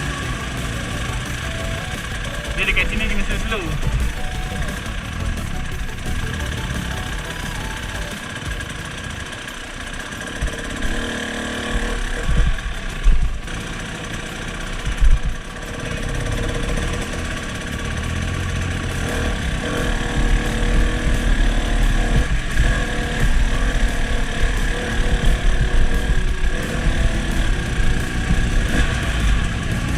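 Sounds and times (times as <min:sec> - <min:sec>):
motorcycle engine running: 0:00.0 - 0:29.9
low thumps: 0:14.9 - 0:15.4, 0:18.2 - 0:29.9.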